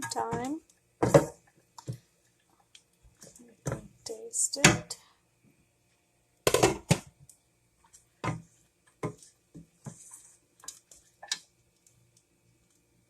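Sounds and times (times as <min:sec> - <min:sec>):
spoon scraping a pan: 0:00.0 - 0:01.4, 0:08.2 - 0:11.5.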